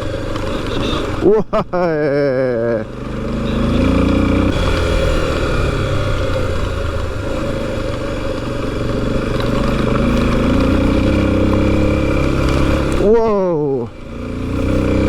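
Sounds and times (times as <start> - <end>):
motorcycle engine running: 0.0 - 15.0
tyres on rocky gravel: 4.4 - 15.0.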